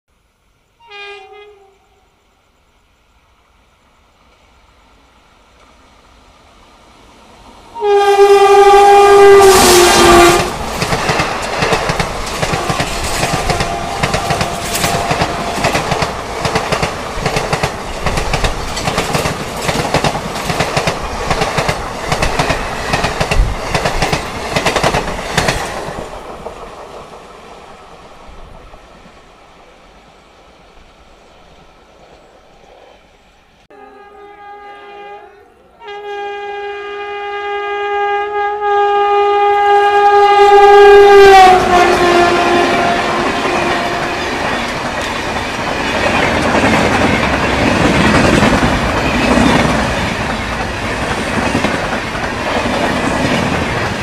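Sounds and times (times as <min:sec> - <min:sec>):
train horn blasts: 0:00.8 - 0:02.1, 0:07.7 - 0:10.6, 0:12.5 - 0:16.4, 0:33.7 - 0:44.4
train wheels clattering: 0:09.5 - 0:29.0.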